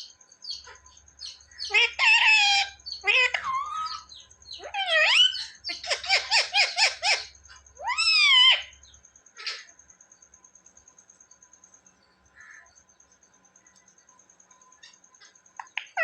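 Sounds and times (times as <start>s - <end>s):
parakeet high-pitched calls: 0.5s - 8.8s, 9.4s - 9.7s, 15.6s - 16.0s.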